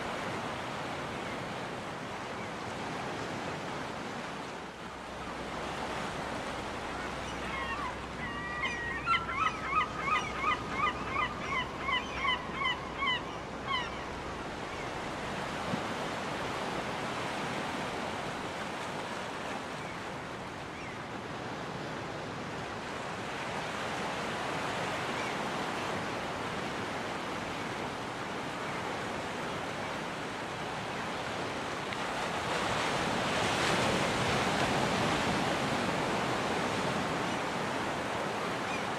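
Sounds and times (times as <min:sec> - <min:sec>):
ocean surf on beach: 0:00.0 - 0:38.9
gull calling: 0:07.0 - 0:14.1.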